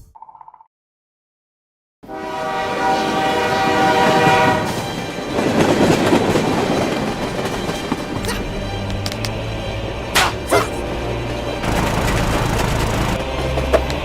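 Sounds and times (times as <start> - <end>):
train horn: 2.0 - 5.6
train running on rails: 2.0 - 14.0.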